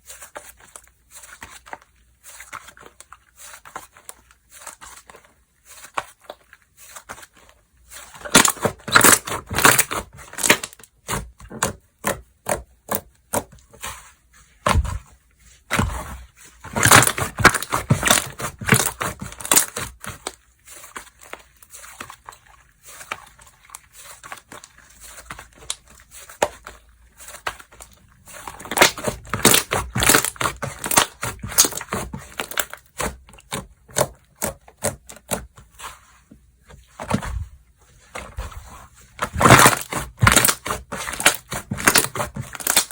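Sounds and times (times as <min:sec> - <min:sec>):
slime crackling and popping: 0:08.2 - 0:12.2, 0:16.7 - 0:20.3, 0:27.4 - 0:35.4, 0:39.2 - 0:42.9.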